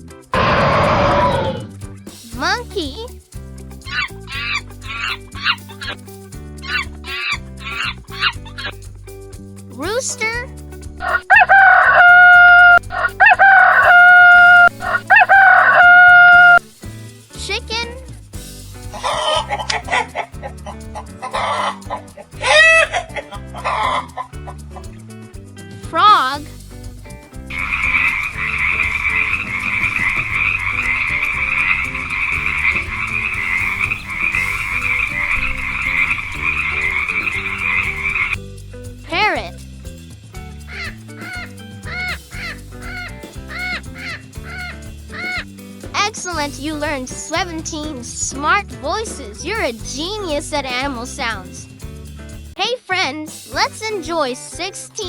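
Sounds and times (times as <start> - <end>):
soft background music: 0.0 - 55.0
rooster crowing: 11.0 - 16.6
frogs croaking: 27.5 - 38.4.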